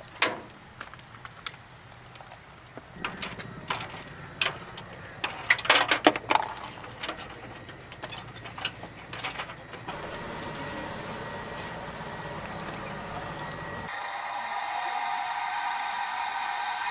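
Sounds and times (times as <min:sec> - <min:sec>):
metallic clicks and clanks: 0:00.0 - 0:02.4, 0:03.0 - 0:10.7
machine hum with high whine: 0:00.0 - 0:16.9.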